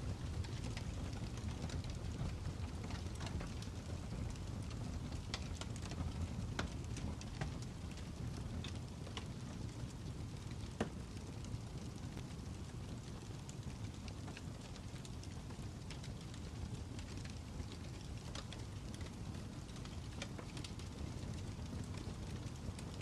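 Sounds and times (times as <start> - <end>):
fire crackling and popping: 0.0 - 23.0.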